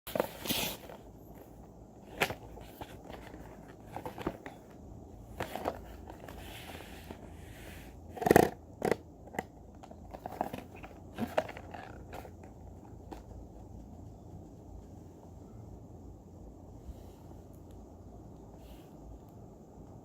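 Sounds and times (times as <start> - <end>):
soft rustle: 0.1 - 8.0.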